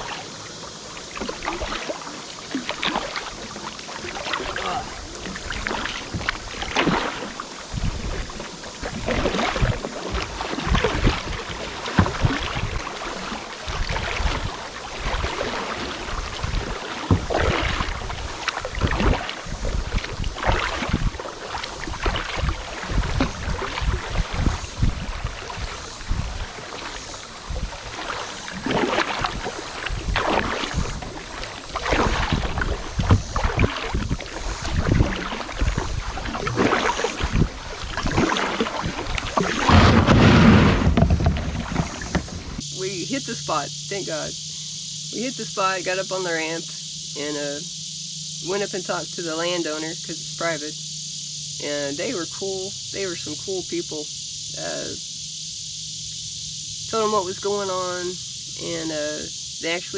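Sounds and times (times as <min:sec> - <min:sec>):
paddle splashing in water: 0:00.0 - 0:47.6.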